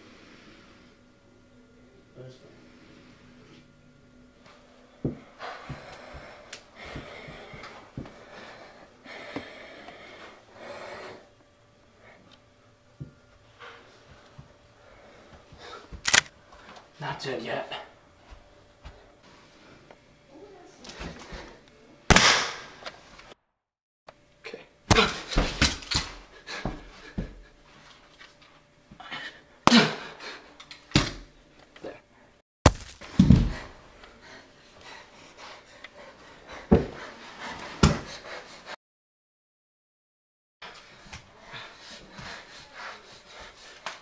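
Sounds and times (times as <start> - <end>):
heavy breathing: 5.1 - 12.4, 13.5 - 16.9, 33.4 - 38.8, 40.6 - 44.0.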